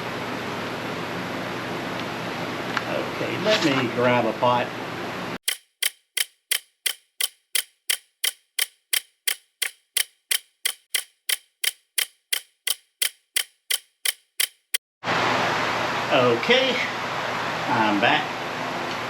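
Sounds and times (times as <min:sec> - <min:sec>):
even ticking: 0:05.4 - 0:14.8.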